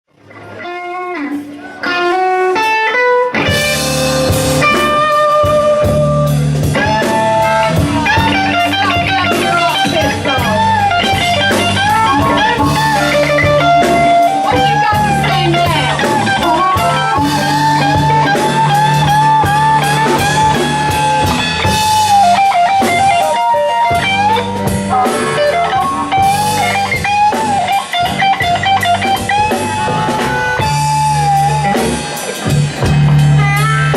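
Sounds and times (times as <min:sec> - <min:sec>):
bass guitar: 0:00.1 - 0:33.9
drums: 0:00.1 - 0:33.9
lead guitar: 0:00.1 - 0:33.9.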